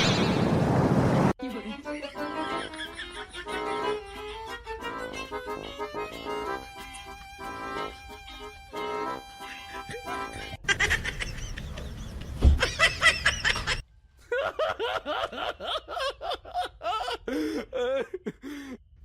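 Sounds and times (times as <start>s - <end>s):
person laughing: 2.4s - 4.7s, 9.7s - 18.8s.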